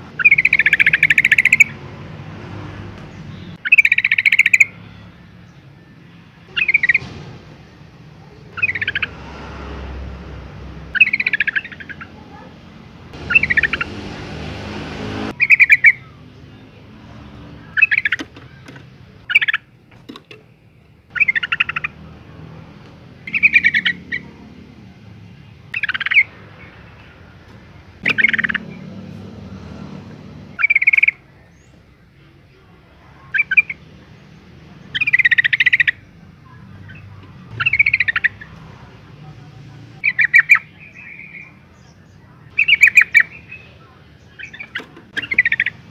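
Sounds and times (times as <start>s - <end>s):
bird chattering call: 0.2s - 1.8s, 3.6s - 4.7s, 6.5s - 7.0s, 8.5s - 9.2s, 10.9s - 12.5s, 13.2s - 14.4s, 21.1s - 22.0s, 23.2s - 24.4s, 25.7s - 26.3s, 28.0s - 28.9s, 30.6s - 31.2s, 34.9s - 36.1s, 36.9s - 38.5s, 40.0s - 41.5s, 42.5s - 43.7s, 44.3s - 45.9s.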